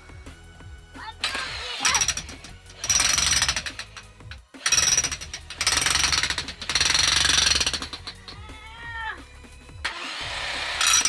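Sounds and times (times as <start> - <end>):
jackhammer breaking ground: 1.3 - 8.2, 9.9 - 11.0.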